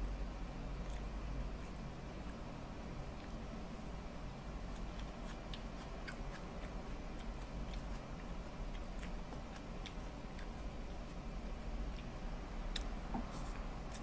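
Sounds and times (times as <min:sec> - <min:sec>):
low steady hum: 0:00.0 - 0:14.0
chewing and lip smacking: 0:04.6 - 0:11.3, 0:11.9 - 0:14.0.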